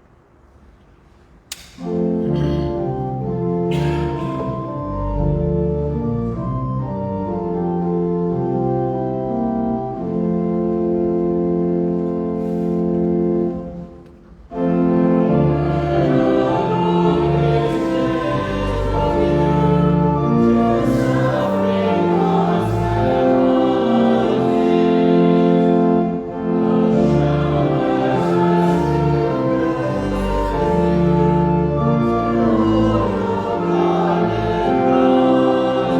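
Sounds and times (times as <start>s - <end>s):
organ accompaniment: 1.5s - 35.9s
choir singing a hymn: 14.5s - 35.9s.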